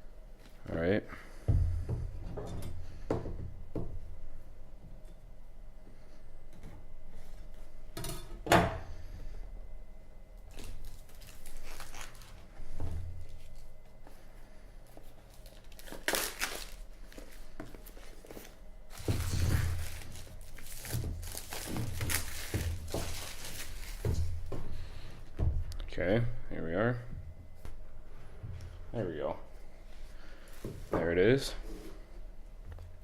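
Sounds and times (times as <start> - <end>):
plastic wrap tearing and crinkling: 10.5 - 12.4, 15.3 - 18.2, 18.9 - 24.2.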